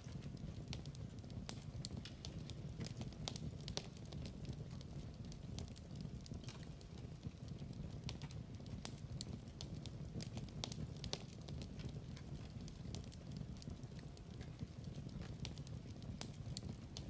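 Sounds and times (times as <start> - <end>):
low rumble of burning logs: 0.0 - 17.0
wood fire crackling: 0.0 - 17.0.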